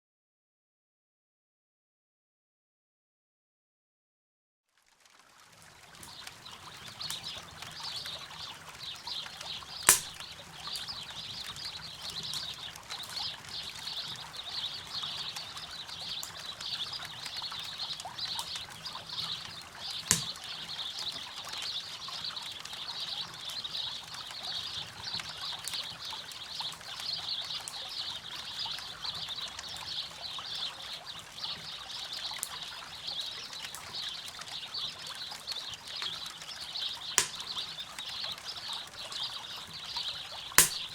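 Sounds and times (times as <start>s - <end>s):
campfire crackling and popping: 4.9s - 27.8s, 32.3s - 40.9s
river water running: 5.2s - 11.9s, 18.5s - 21.4s, 36.4s - 40.9s.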